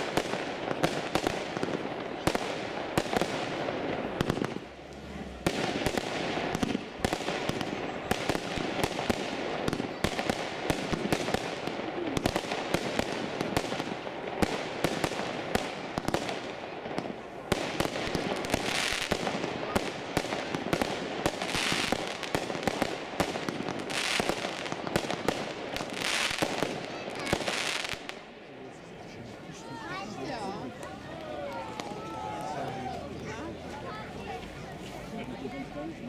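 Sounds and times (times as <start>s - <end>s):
firework battery crackling: 0.0s - 28.3s.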